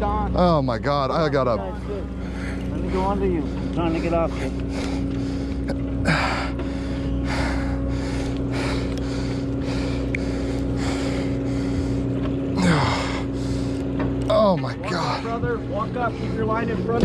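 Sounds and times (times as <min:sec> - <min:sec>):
boat engine droning: 0:00.0 - 0:17.0
person breathing hard: 0:02.2 - 0:13.8.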